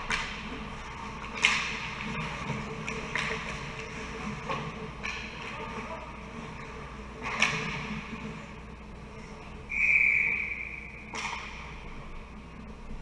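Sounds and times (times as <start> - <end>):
ice rink rumble: 0.0 - 13.0
referee's whistle: 9.7 - 11.1.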